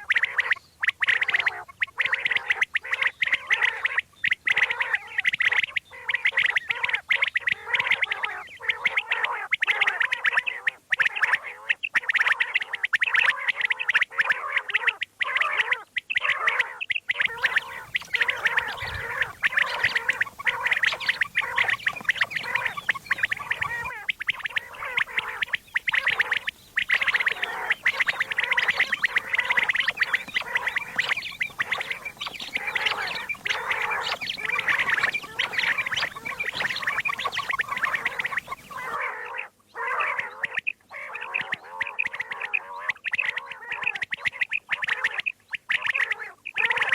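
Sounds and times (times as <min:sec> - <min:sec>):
quail calling: 0:00.0 - 0:46.9.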